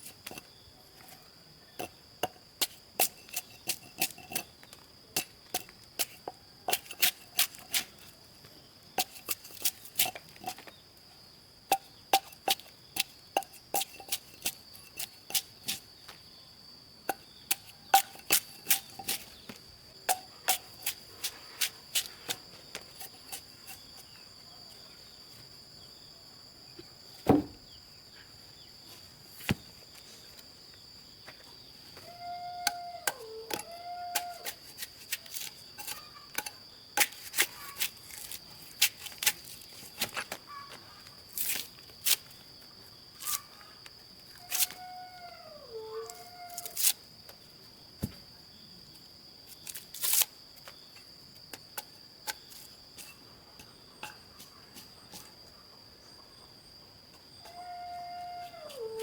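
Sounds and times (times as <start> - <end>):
high insect drone: 0.0 - 59.0
hand tool striking wood: 17.1 - 21.0, 27.2 - 27.6.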